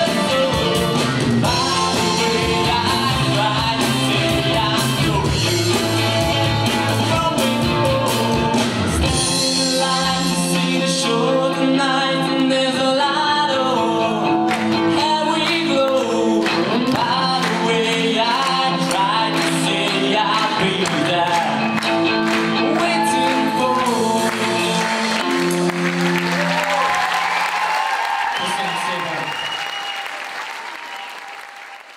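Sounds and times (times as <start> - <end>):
drums and bass: 0.0 - 13.5, 14.3 - 26.4
person singing: 0.0 - 25.7
live rock band playing: 0.0 - 27.0.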